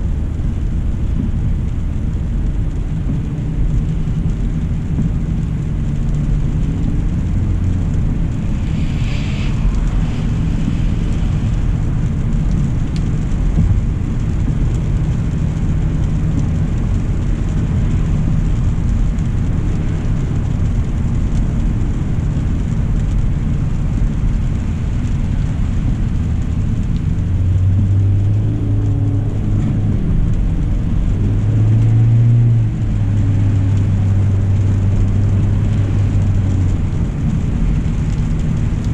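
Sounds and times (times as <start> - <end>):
tyre rumble on wet road: 0.0 - 38.9
brief hiss: 8.4 - 11.8.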